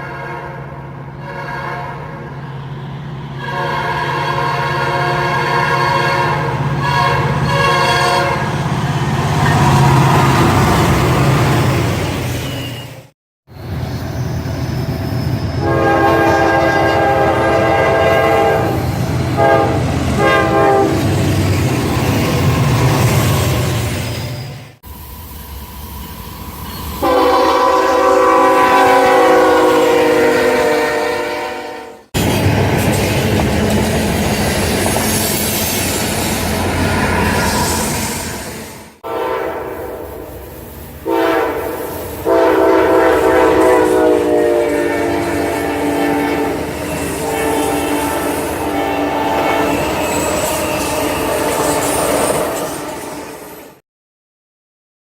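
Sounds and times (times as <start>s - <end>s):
train horn blasts: 0.0s - 8.7s, 15.6s - 21.0s, 27.0s - 32.2s, 39.0s - 40.3s, 41.0s - 50.3s
train passing: 0.0s - 53.8s.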